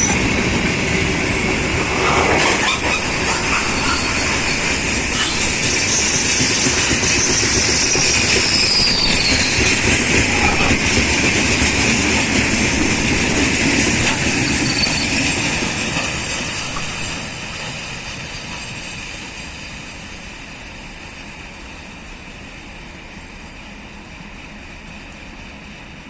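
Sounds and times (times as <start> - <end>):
high wheel squeal: 0.0 - 11.7, 13.9 - 17.4
train wheels clattering on rails: 0.0 - 26.0.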